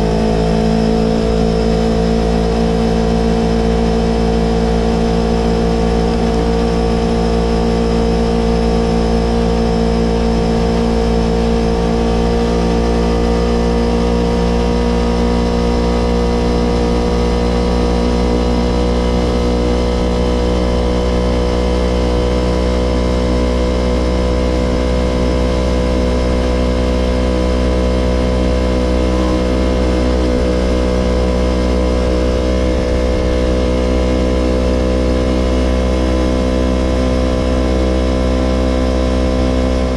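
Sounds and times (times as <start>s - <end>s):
motorcycle engine idling: 23.2s - 39.9s.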